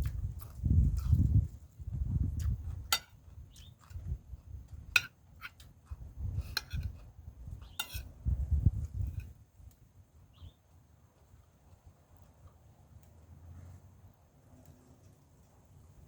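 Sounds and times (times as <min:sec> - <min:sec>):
chewing and mouth noises: 0:00.0 - 0:07.8.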